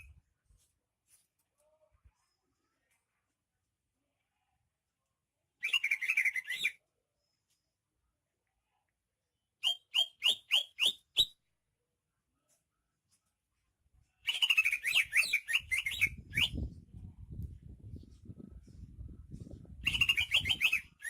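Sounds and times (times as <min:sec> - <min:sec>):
leafbird singing: 0:19.9 - 0:21.0.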